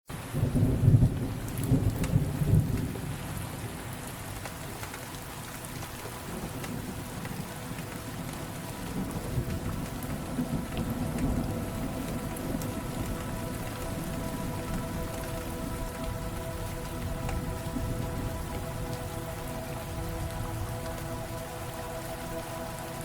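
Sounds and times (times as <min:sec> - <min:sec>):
steady rain: 0:00.1 - 0:23.0
thunder rumbling: 0:05.9 - 0:23.0.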